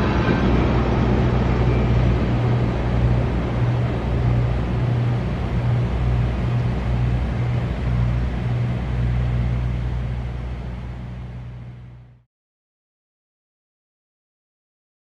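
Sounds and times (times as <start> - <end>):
train cars rolling: 0.0 - 11.5
diesel locomotive drone: 0.0 - 12.2.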